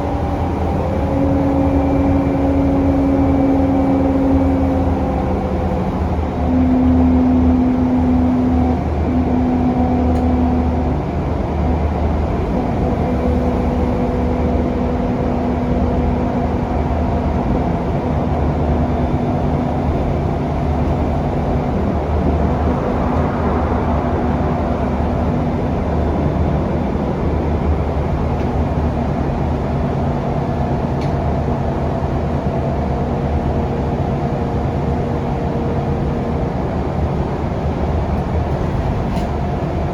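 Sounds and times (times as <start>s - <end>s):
bus engine drone with whine: 0.0s - 39.9s
road noise: 0.0s - 39.9s.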